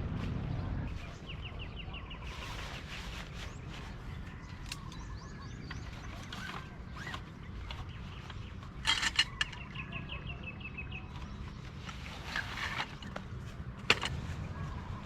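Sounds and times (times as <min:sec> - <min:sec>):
steady low rumble: 0:00.0 - 0:02.3.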